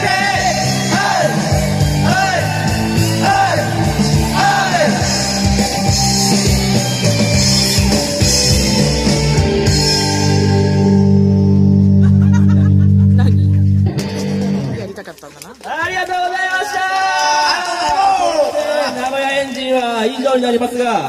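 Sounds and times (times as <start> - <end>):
singer singing: 0.0 - 5.6
rock band playing: 0.0 - 14.9.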